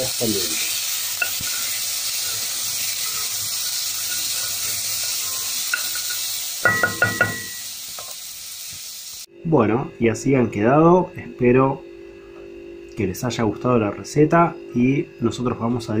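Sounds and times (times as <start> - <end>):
nuts sizzling in hot oil: 0.0 - 9.3
sharp ringing knocks: 6.6 - 7.5.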